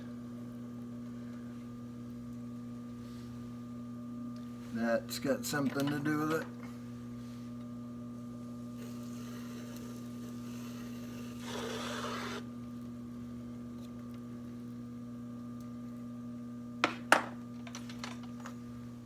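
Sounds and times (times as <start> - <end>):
potter's wheel humming: 0.0 - 19.0.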